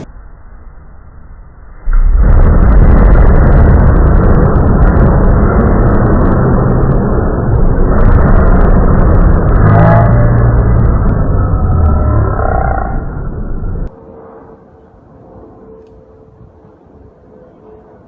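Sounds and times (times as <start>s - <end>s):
thunder rumble: 0.0s - 18.0s
thunder crack: 1.9s - 14.0s.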